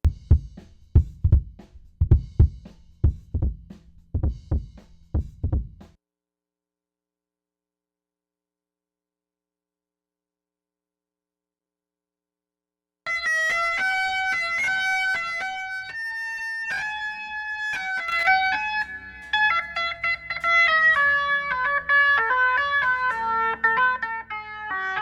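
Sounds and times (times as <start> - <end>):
guitar plucked melody: 13.1 - 25.0.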